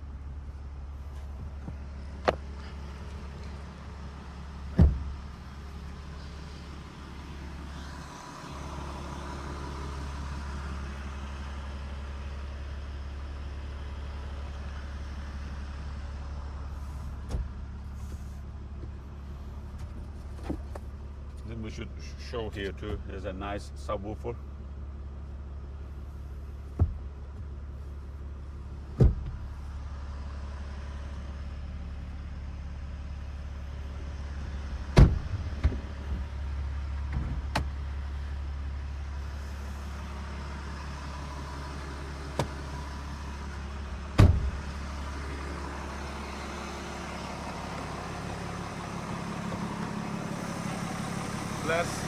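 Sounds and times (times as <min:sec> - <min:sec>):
diesel engine idling: 0:00.0 - 0:52.0
sharp knocks and thumps: 0:04.7 - 0:05.2, 0:26.7 - 0:27.6, 0:29.0 - 0:29.4, 0:35.0 - 0:36.4, 0:42.2 - 0:42.9, 0:44.2 - 0:44.8.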